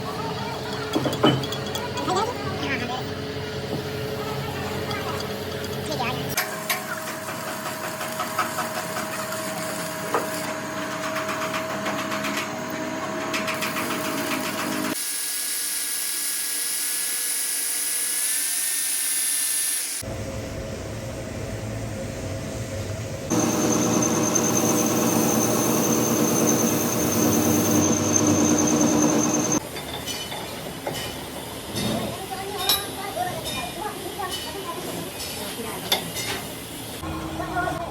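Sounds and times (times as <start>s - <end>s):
power tools machining steel: 23.3s - 29.6s
rising whine: 23.3s - 29.6s.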